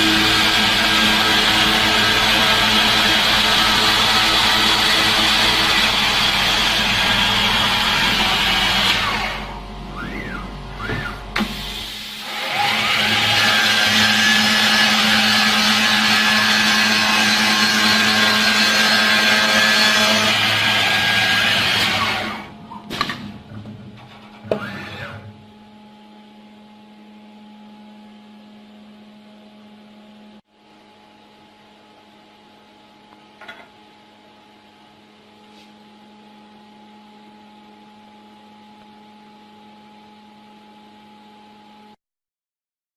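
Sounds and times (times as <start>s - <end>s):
router spindle high whine: 0.0s - 11.4s, 12.3s - 22.6s
machine humming: 0.0s - 27.6s.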